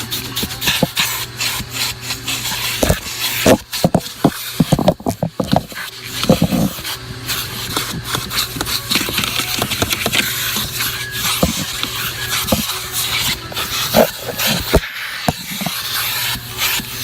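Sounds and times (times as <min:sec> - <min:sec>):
nozzle scraping carpet: 0:00.0 - 0:17.0
vacuum cleaner humming: 0:00.0 - 0:17.0.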